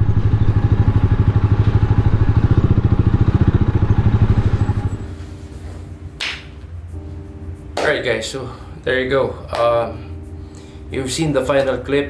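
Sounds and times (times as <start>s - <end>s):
motorcycle engine running: 0.0s - 5.1s
steady tones: 2.6s - 11.8s.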